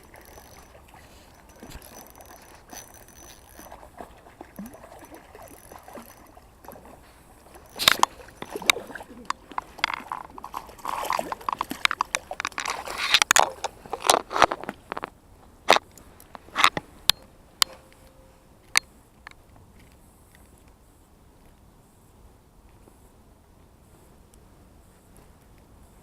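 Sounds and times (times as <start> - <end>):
water splashing and sloshing: 0.0 - 17.9
sharp clicks and knocks: 7.6 - 15.1.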